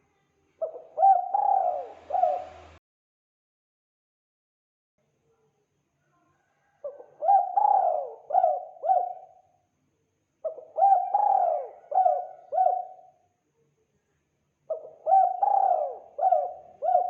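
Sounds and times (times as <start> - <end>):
dove cooing: 0.6 - 2.8, 6.8 - 9.4, 10.4 - 13.2, 14.7 - 17.0.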